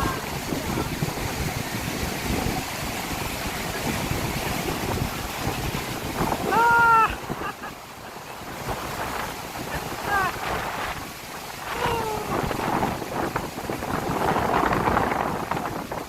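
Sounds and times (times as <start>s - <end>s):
surf washing: 0.0s - 16.0s
wind buffeting microphone: 0.0s - 16.0s
short pitched cry: 11.8s - 12.3s.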